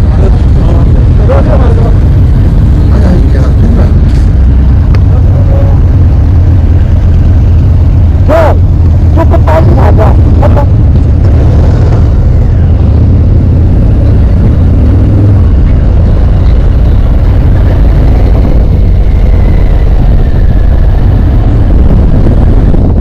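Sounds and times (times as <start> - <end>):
motorcycle engine running: 0.0 - 23.0
wind rumble on microphone: 0.0 - 23.0.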